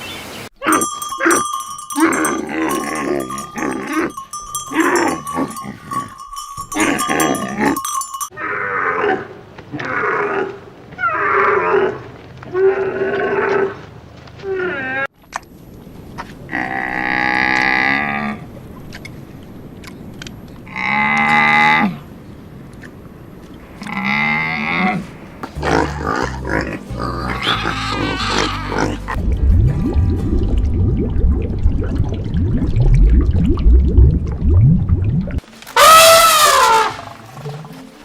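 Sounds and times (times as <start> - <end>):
livestock calling: 23.7 - 29.2.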